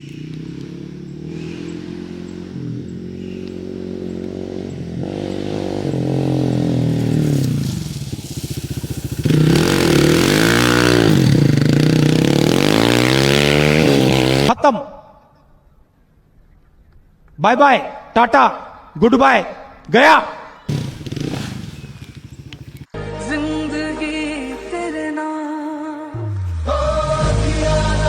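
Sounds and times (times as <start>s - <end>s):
motorcycle engine revving: 0.0s - 14.6s, 20.6s - 23.0s.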